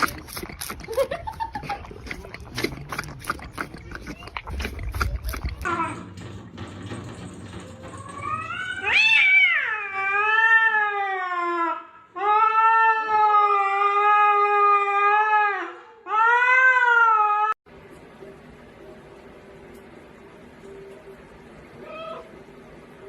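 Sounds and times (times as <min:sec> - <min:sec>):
cat yowling: 0:08.2 - 0:17.6, 0:21.8 - 0:22.3.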